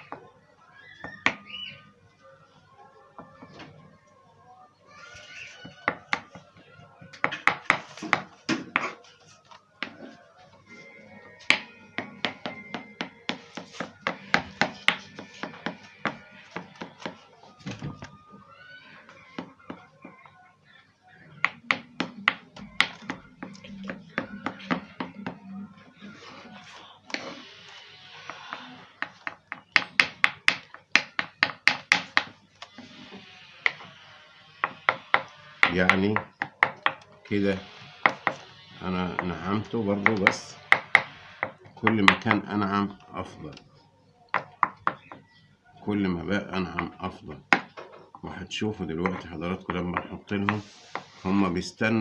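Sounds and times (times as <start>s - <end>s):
utensil tapping against dish: 11.4s - 17.2s, 21.4s - 25.4s.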